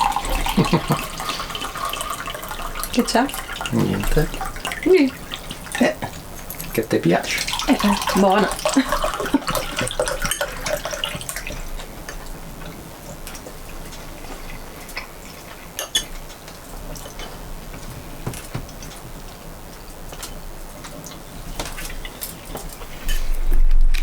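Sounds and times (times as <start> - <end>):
cutlery clinking against plates: 15.8 - 16.3, 21.8 - 23.4.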